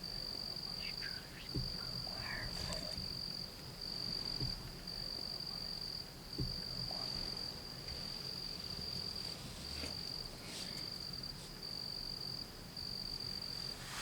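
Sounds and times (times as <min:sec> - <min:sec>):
insects trilling: 0:00.0 - 0:14.0
faint low knocks: 0:01.4 - 0:05.0, 0:06.3 - 0:09.2.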